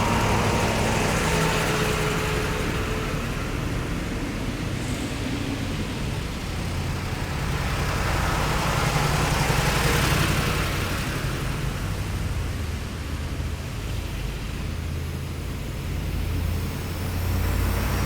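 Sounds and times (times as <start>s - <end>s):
heavy vehicle engine passing: 0.0s - 12.3s.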